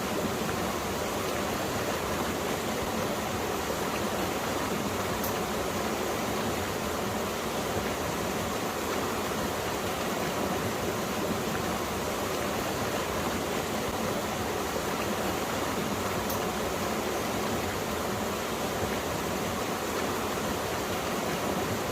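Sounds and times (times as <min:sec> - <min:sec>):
stream water rushing over rocks: 0:00.0 - 0:21.9.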